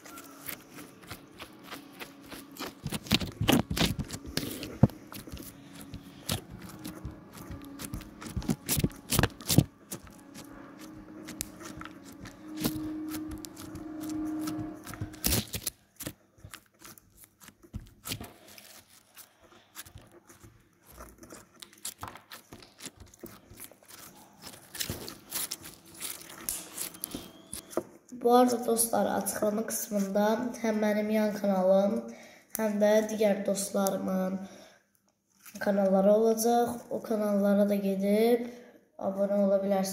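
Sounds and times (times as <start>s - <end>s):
slime squelching and popping: 0.0s - 27.8s.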